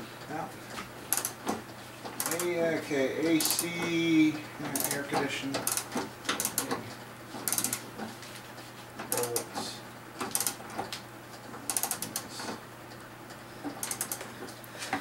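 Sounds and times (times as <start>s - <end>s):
socket ratchet clicking: 1.1s - 1.4s, 5.6s - 6.6s, 7.5s - 7.8s, 10.3s - 10.6s, 11.7s - 12.2s, 13.8s - 14.2s.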